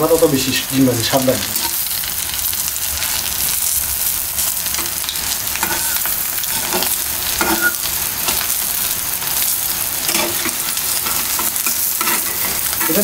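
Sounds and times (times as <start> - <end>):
egg sizzling in hot oil: 0.0 - 13.0
metal spatula scraping pan: 5.6 - 8.5, 10.0 - 13.0.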